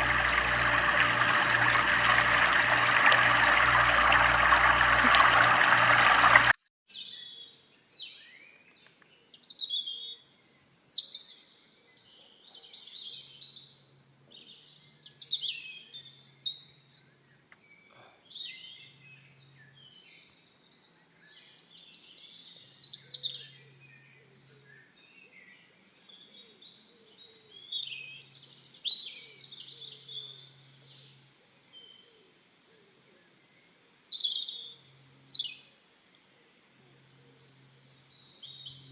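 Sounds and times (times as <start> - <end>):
running water: 0.0 - 6.6.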